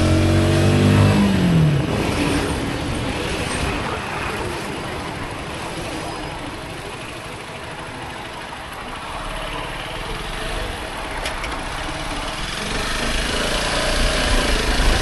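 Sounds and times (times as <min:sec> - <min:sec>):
motorcycle engine accelerating: 0:00.0 - 0:04.0, 0:10.1 - 0:15.0.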